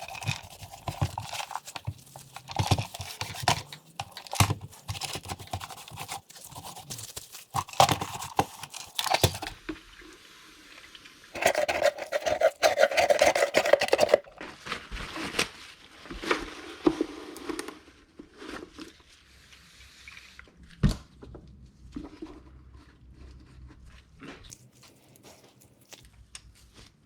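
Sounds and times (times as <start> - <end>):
rubbing and scraping: 0.0 - 9.6, 11.4 - 14.5.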